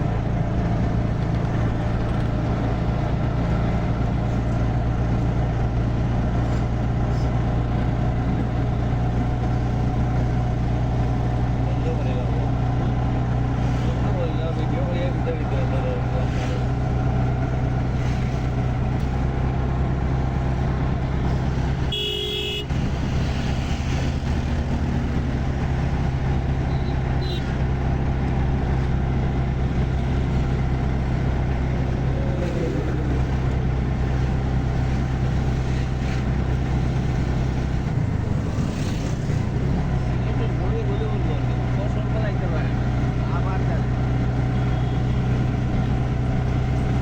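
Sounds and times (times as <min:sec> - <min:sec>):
road noise: 0:00.0 - 0:47.0
vehicle engine hum: 0:00.0 - 0:47.0
car horn toot: 0:21.8 - 0:22.8, 0:26.7 - 0:27.6, 0:44.6 - 0:45.3.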